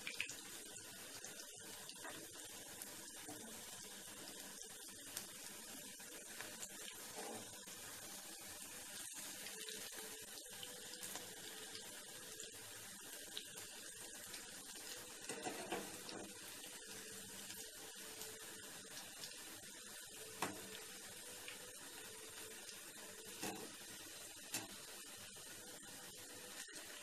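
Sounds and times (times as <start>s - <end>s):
pakoras sizzling in oil: 0.0s - 27.0s
spatula scraping and tapping pan: 7.1s - 7.6s, 15.3s - 16.3s, 23.3s - 23.8s.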